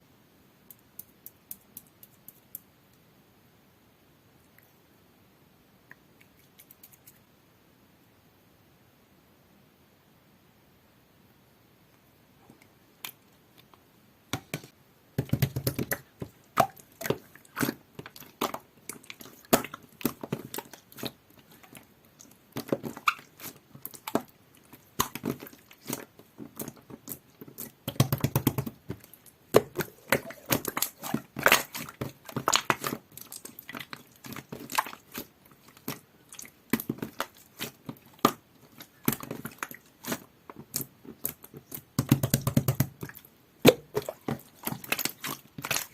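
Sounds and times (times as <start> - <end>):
slime squishing by hand: 12.4 - 45.9.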